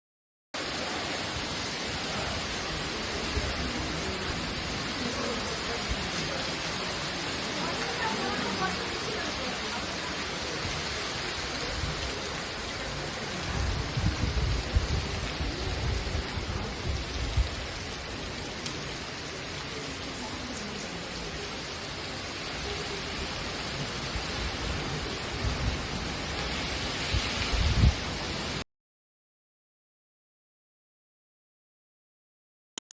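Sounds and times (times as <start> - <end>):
heavy rain pouring: 0.6 - 28.6
wind gusts rumbling: 10.6 - 18.2, 23.2 - 28.6.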